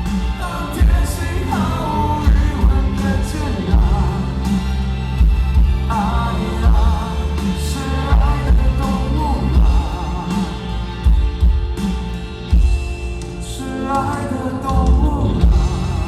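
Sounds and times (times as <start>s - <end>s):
person singing: 0.0s - 11.9s, 13.4s - 16.0s
heavy kick drum beats: 0.0s - 13.4s, 14.7s - 16.0s
rock band playing live: 0.0s - 16.0s.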